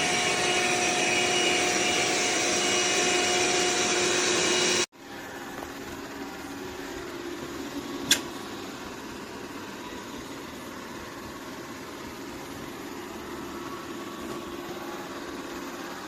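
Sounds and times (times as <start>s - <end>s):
robot vacuum whirring: 0.0s - 4.9s.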